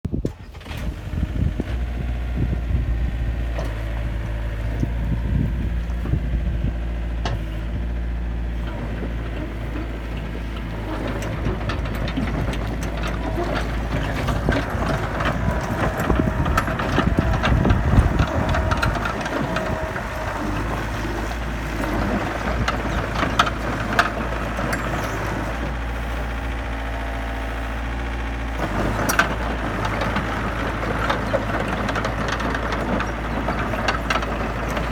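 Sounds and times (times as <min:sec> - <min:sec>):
excavator diesel engine running: 0:00.1 - 0:34.9
knocks and clanks: 0:08.6 - 0:25.8, 0:28.6 - 0:34.9.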